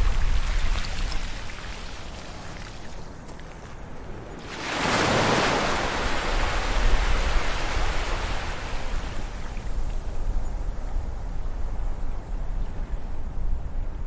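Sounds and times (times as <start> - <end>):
low rumble of surf: 0.0 - 14.0
sea wave washing up beach: 4.4 - 9.5.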